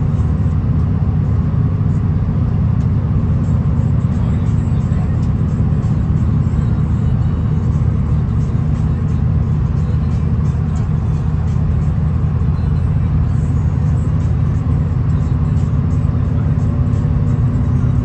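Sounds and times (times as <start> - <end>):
railcar rumble from inside: 0.0 - 18.0.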